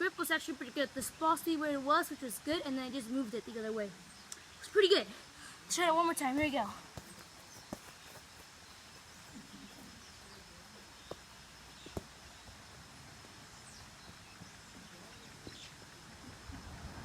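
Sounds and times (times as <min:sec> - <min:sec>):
faint bird chirps: 0:01.0 - 0:16.8
football kicked on wet grass: 0:06.2 - 0:16.0.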